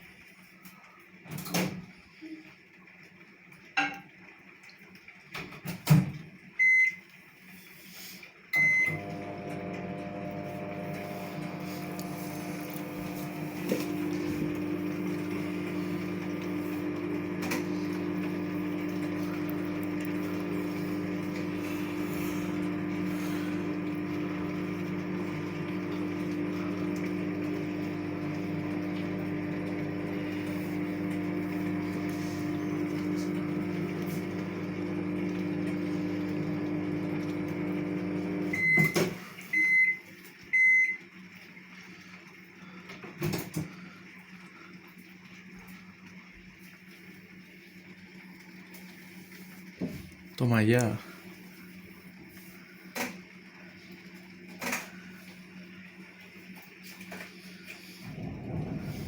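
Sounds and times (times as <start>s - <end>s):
steady machine hum: 8.6s - 38.8s, 57.5s - 59.0s.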